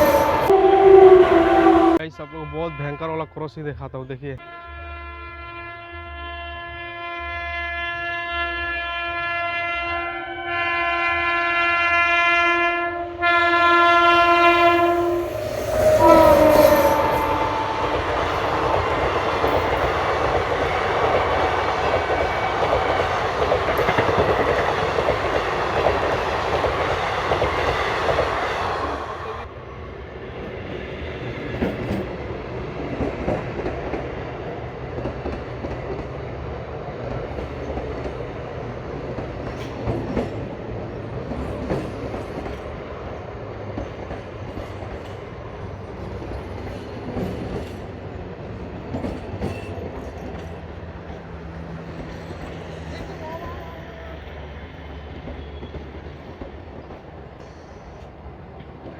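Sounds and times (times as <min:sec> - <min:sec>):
train rushing past: 0:00.0 - 0:02.3, 0:09.8 - 0:58.9
multi-note train air horn: 0:00.0 - 0:03.4, 0:04.4 - 0:19.5
wheels clacking over rail joints: 0:15.0 - 0:28.5, 0:31.5 - 0:53.4.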